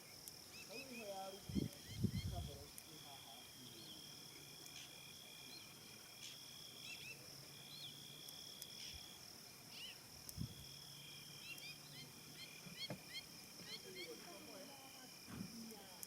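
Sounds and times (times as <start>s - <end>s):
insects trilling: 0.0s - 16.0s
soft thump: 12.6s - 13.1s, 15.3s - 15.6s.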